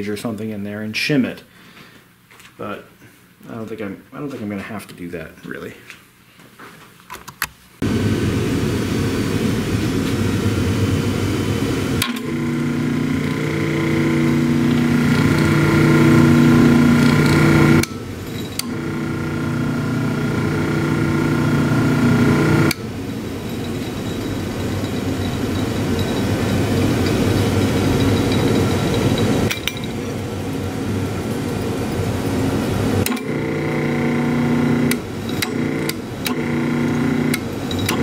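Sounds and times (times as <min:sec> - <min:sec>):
drill press motor hum: 0:12.0 - 0:30.5, 0:32.3 - 0:38.0
motor rattling: 0:12.0 - 0:30.6, 0:33.0 - 0:38.0.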